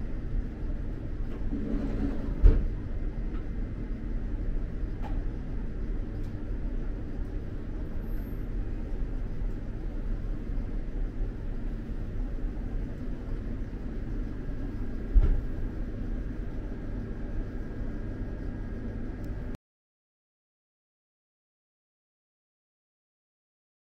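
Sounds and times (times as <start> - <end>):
thump: 15.2 - 15.4.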